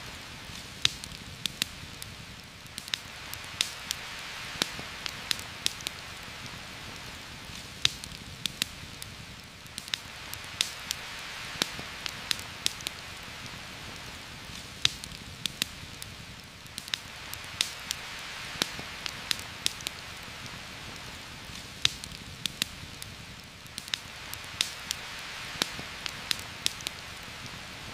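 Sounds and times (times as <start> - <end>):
campfire crackling and popping: 0.0 - 27.9
heavy rain falling: 0.0 - 27.9.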